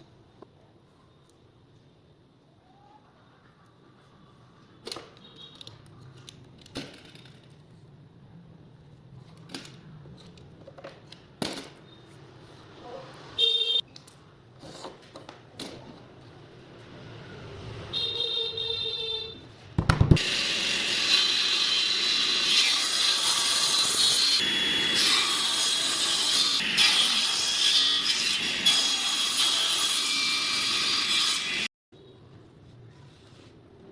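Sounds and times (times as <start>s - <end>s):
power tool working wood: 20.2s - 31.7s.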